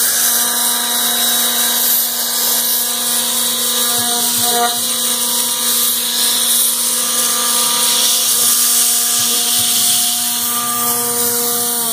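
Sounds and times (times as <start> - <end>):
router spindle whining: 0.0 - 11.9.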